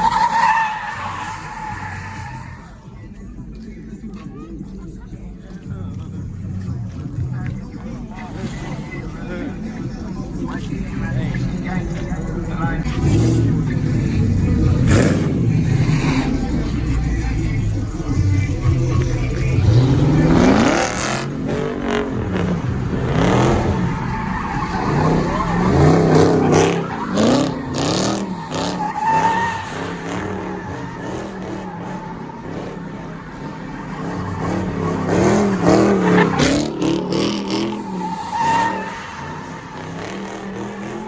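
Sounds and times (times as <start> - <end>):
tyres squealing: 0.0 - 3.0, 12.9 - 41.0
car engine revving: 0.0 - 41.0.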